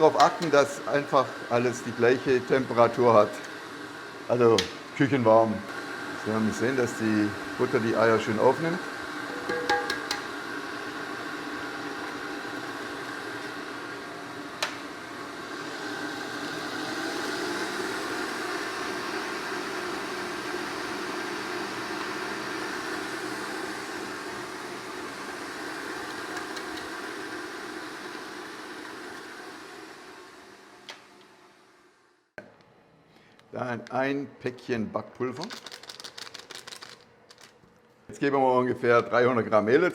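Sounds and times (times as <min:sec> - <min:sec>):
stand mixer beating batter: 0:00.0 - 0:30.7.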